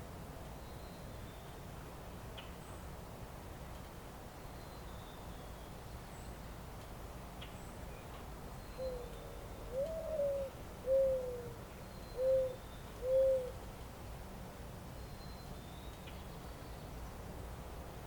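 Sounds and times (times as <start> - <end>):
pigeon cooing: 9.7 - 11.5, 12.2 - 13.6.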